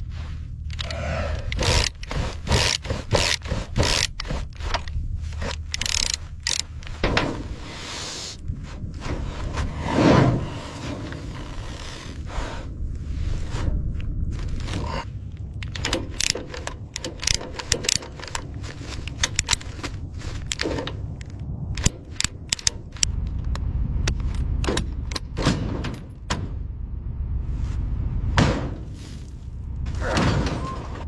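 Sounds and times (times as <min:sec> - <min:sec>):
low rumble: 0:00.0 - 0:31.0
sharp clicks and knocks: 0:00.7 - 0:07.6, 0:14.0 - 0:26.7.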